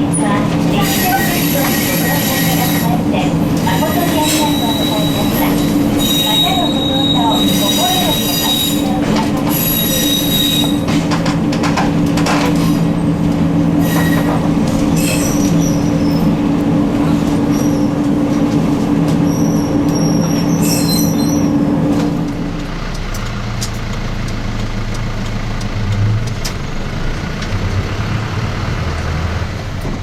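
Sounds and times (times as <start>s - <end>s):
train wheels squealing: 0.8s - 3.0s, 3.7s - 10.9s, 13.8s - 16.3s, 19.2s - 21.5s
short high squeaks: 19.3s - 21.5s.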